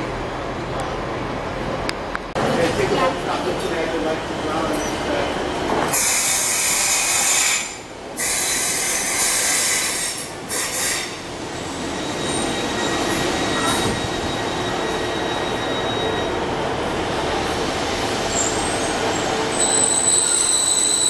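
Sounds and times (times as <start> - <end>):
train coaches rumbling: 0.0 - 21.0
thin wheel squeal: 18.3 - 21.0.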